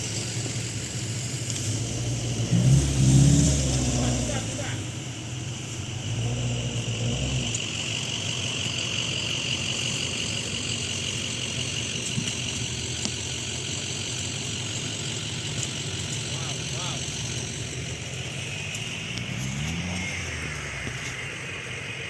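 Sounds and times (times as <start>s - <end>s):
off-road vehicle engine running: 0.0s - 22.0s
deep low rumble: 16.6s - 22.0s.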